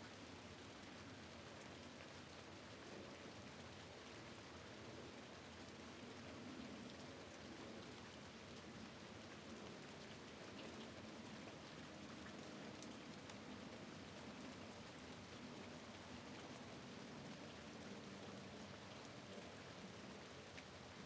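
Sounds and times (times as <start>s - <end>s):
light raindrop ticks: 9.3s - 14.3s, 14.9s - 21.0s.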